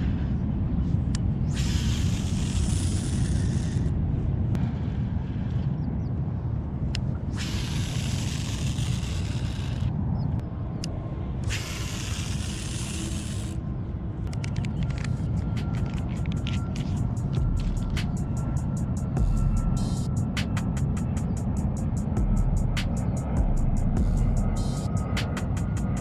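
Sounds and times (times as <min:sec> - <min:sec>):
wind rumbling on microphone: 0:00.0 - 0:26.0
hiss: 0:01.4 - 0:03.9, 0:07.3 - 0:09.9, 0:11.4 - 0:13.6
quick clicks: 0:14.2 - 0:18.7, 0:24.6 - 0:26.0.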